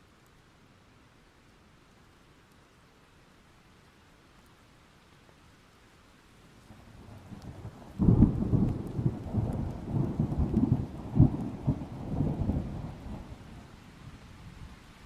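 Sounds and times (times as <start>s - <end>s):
thunder rumbling and cracking: 7.1s - 13.6s.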